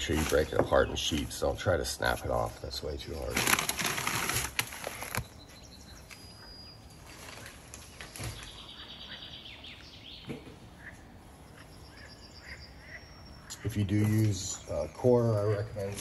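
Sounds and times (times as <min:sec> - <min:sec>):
bird chirps and trills: 0:04.9 - 0:16.0.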